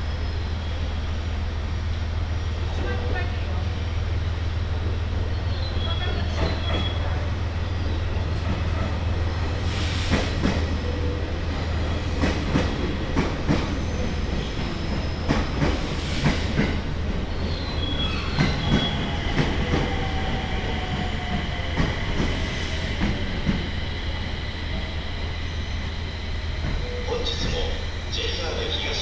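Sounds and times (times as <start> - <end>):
train wheel squeal: 5.2 - 8.7, 13.5 - 29.0.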